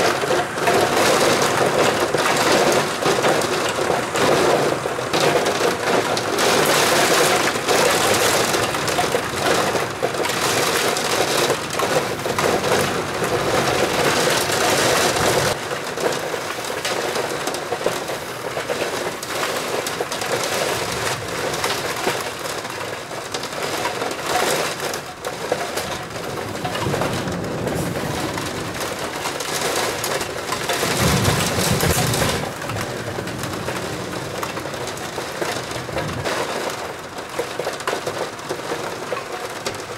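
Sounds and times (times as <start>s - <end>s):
heavy rain pouring: 0.0s - 39.9s
low thunder rumble: 0.1s - 15.6s, 26.1s - 36.3s.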